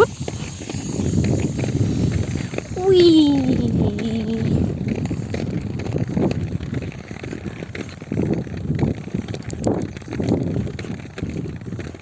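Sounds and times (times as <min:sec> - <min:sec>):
roller skate wheels on pavement: 0:00.0 - 0:12.0.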